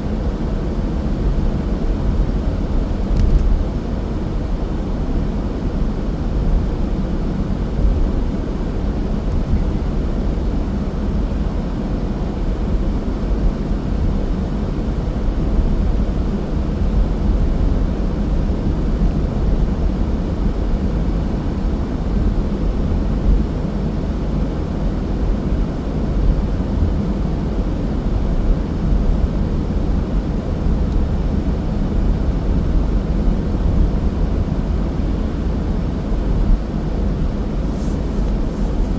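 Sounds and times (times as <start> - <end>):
car road rumble: 30.7 - 38.9.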